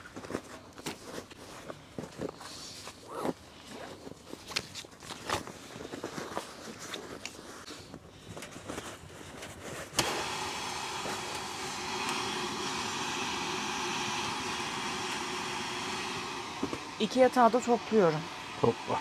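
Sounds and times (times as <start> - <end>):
handling rustles and clicks: 0.0 - 10.0
electric air pump running: 9.9 - 19.0.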